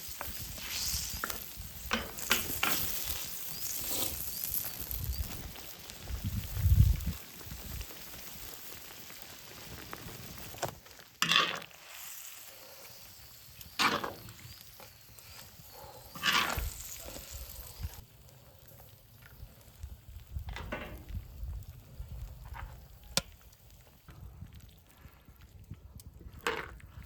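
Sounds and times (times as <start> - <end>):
food sizzling on metal lid: 0.0 - 18.3.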